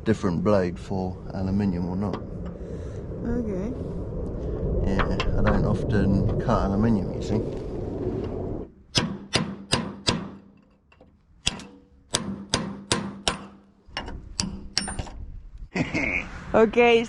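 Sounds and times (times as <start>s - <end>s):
hammer striking metal: 11.4s - 13.6s.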